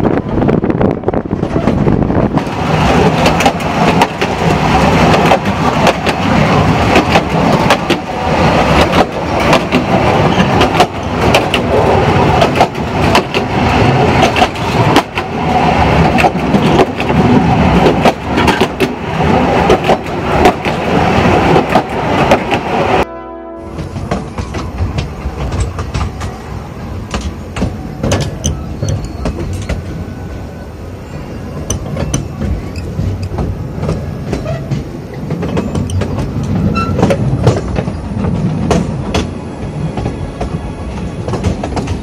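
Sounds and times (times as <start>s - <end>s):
wind buffeting microphone: 0.0s - 23.0s
steady train rumble: 0.0s - 42.0s
train wheels clattering over rails: 1.2s - 23.0s, 23.7s - 30.5s, 31.2s - 42.0s.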